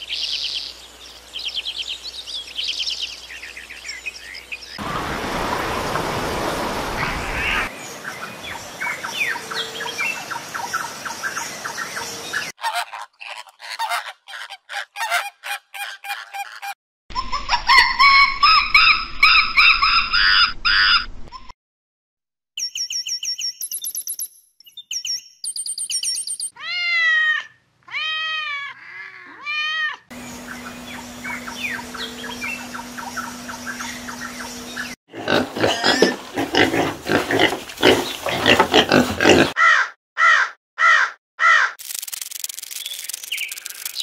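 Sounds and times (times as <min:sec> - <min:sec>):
rising and falling animal calls: 0:12.6 - 0:21.1
fast high chirps: 0:41.8 - 0:44.0.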